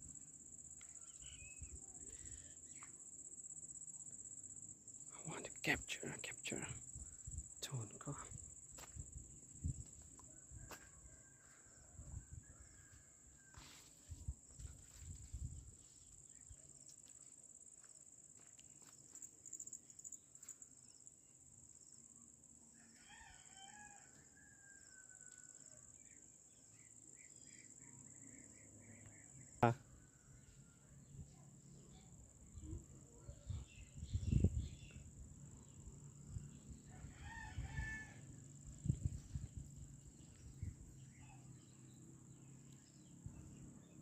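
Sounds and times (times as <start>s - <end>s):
faint rooster crowing: 10.2s - 14.3s, 22.7s - 26.2s, 29.8s - 31.4s, 35.6s - 39.2s.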